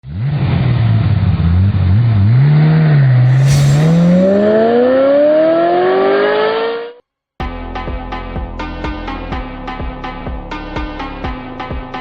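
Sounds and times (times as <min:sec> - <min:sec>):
brief hiss: 0:03.3 - 0:04.8.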